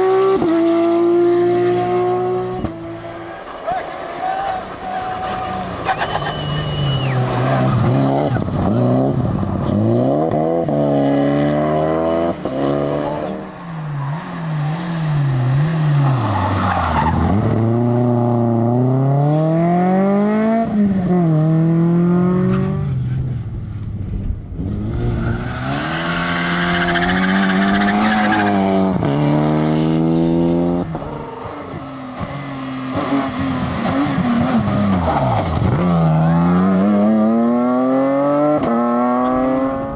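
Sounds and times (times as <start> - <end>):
rally car engines revving: 0.0 - 39.9
tyres skidding: 2.5 - 10.4, 12.3 - 18.2, 24.7 - 29.5, 30.8 - 37.4.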